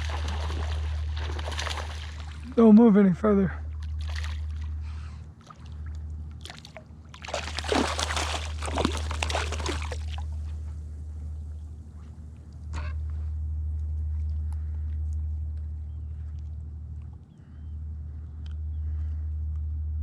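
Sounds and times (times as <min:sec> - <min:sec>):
water splashing and sloshing: 0:00.0 - 0:02.9, 0:03.6 - 0:10.8
low rumble: 0:00.0 - 0:20.0.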